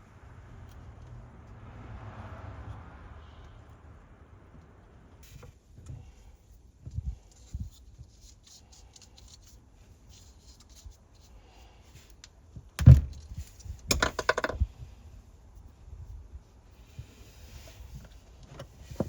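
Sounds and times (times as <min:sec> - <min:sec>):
loud thump: 0:12.8 - 0:13.2.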